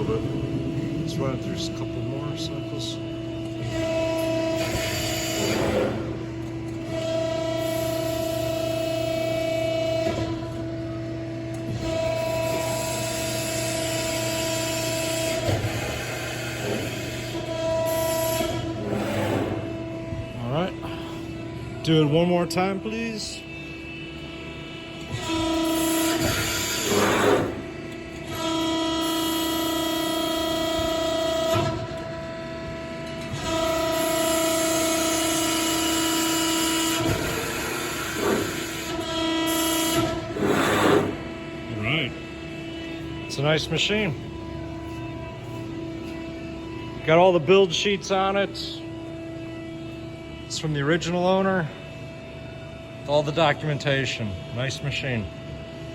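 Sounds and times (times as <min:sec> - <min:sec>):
low hum: 0:00.0 - 0:04.8
hydraulic pump whine: 0:00.0 - 0:55.9.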